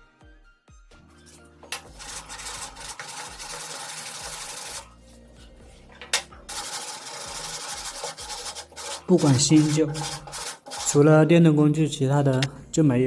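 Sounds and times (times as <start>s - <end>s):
power tool whirring on wood: 1.2s - 11.1s.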